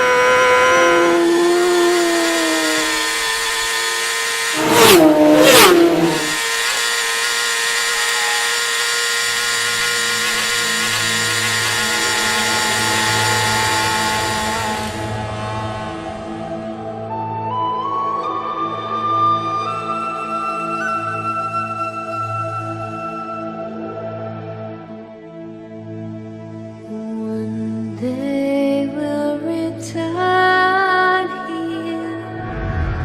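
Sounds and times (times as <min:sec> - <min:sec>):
racing motorcycle engines revving: 0:00.0 - 0:16.7
motorcycles passing by: 0:04.5 - 0:06.4.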